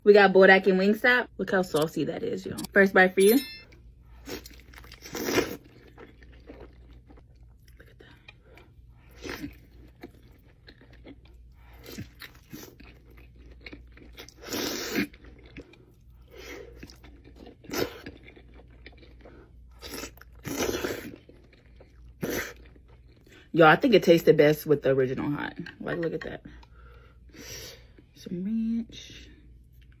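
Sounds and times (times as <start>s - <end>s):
chewing: 4.3s - 23.4s.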